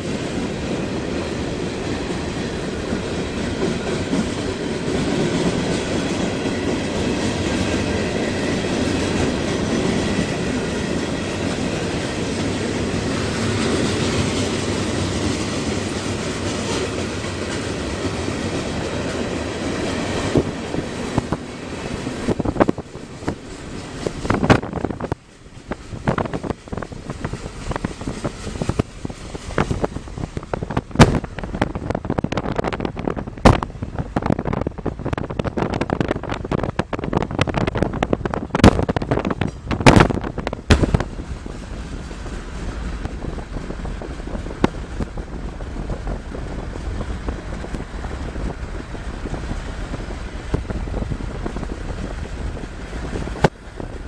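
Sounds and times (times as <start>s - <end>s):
low road rumble: 0.0s - 54.0s
wind buffeting microphone: 0.0s - 54.0s
sharp pops: 31.0s - 31.7s, 33.4s - 33.7s, 39.7s - 41.4s.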